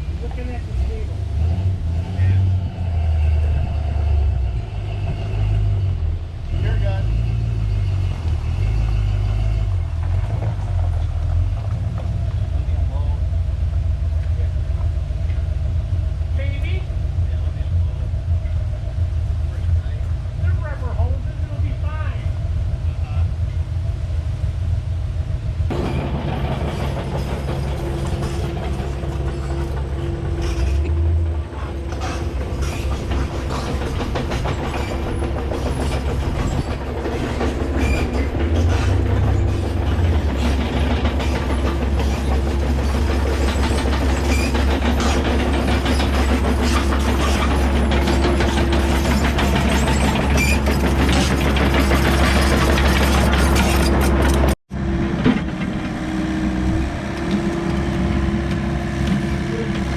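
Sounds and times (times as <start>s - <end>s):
diesel engine running: 0.0s - 59.9s
clanks and rattles: 25.7s - 56.0s.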